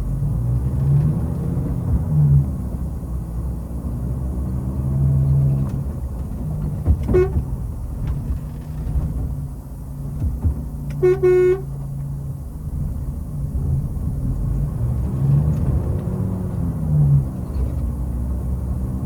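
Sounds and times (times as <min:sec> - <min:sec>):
horn beep: 0:07.1 - 0:07.4, 0:11.0 - 0:11.7.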